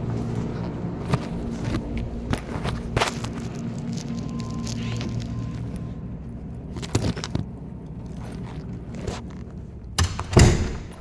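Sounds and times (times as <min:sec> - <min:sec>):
handling knocks and clicks: 0:10.0 - 0:11.0.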